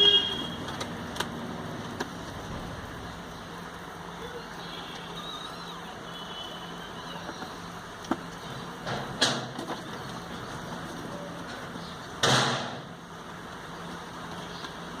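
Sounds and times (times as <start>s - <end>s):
sharp knocks: 12.2s - 12.9s.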